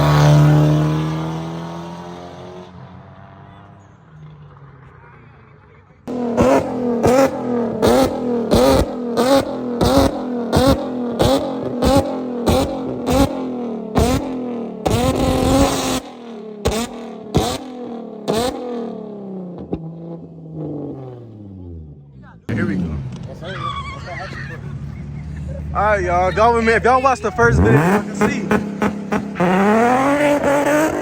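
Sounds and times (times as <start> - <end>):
car engines at full throttle: 0.0 - 31.0.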